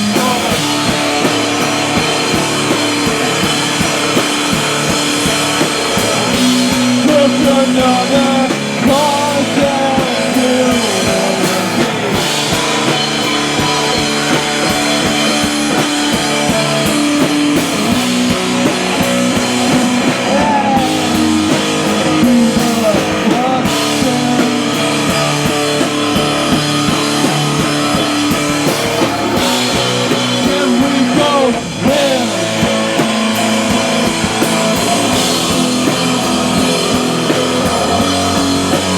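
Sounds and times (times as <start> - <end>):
person singing: 0.0 - 0.9, 5.9 - 12.8, 19.7 - 26.3, 29.0 - 33.5
distorted electric guitar: 0.0 - 38.9
drum kit: 0.0 - 38.9.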